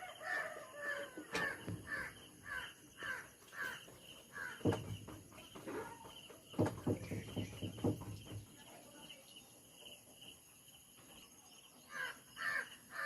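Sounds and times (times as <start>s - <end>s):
crow cawing: 0.2s - 4.8s, 11.9s - 13.0s.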